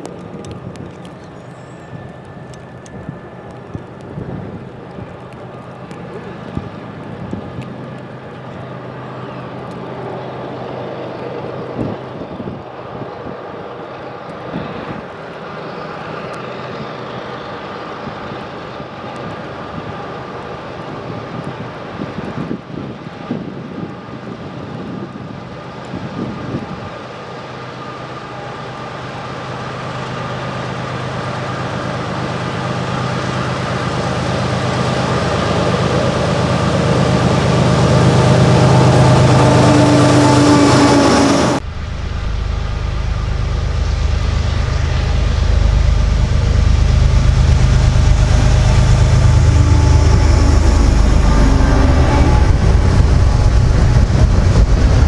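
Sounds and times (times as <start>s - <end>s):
diesel locomotive drone: 0.0s - 23.3s, 24.0s - 55.0s
wind buffeting microphone: 35.5s - 55.0s.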